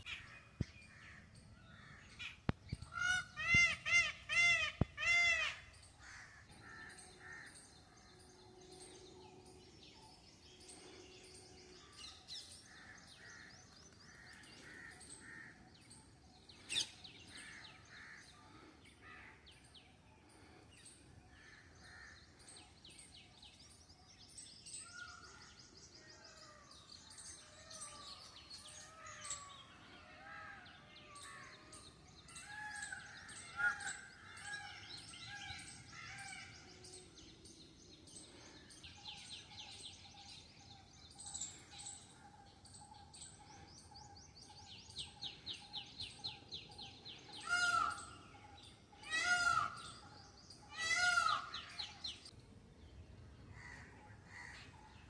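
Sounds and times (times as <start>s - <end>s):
birds chirping and trilling: 0.0s - 55.0s
loud harsh bird calls: 1.8s - 7.6s, 47.3s - 48.2s, 48.9s - 52.3s.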